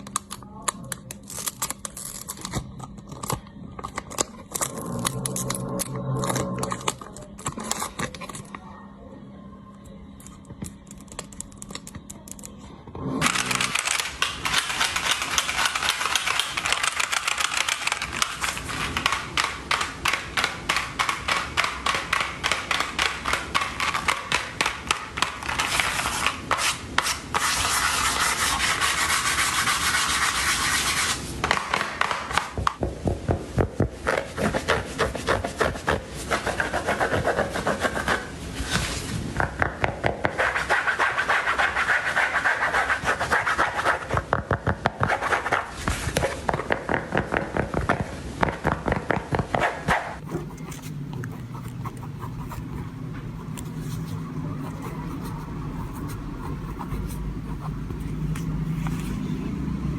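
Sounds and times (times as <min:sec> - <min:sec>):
fast scratching and rubbing: 0:13.2 - 0:19.2, 0:25.4 - 0:31.2, 0:34.0 - 0:38.3, 0:40.2 - 0:44.3, 0:49.9 - 0:59.5.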